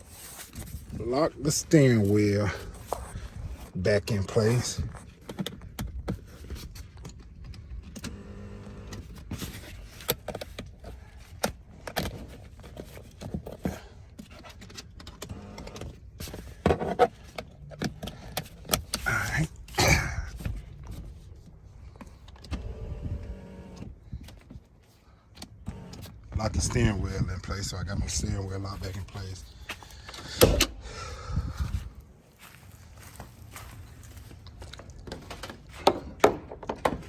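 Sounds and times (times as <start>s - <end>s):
seat belt buckle rattling: 8.9s - 19.1s.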